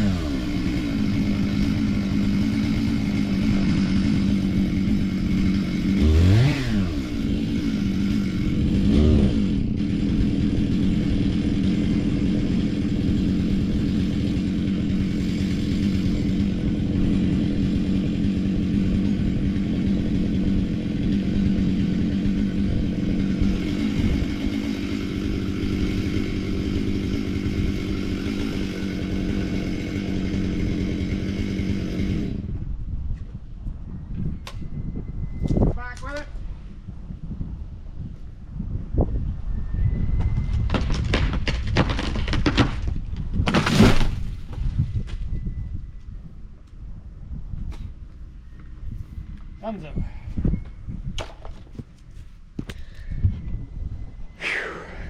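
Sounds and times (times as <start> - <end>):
excavator diesel engine running: 0.0 - 32.4.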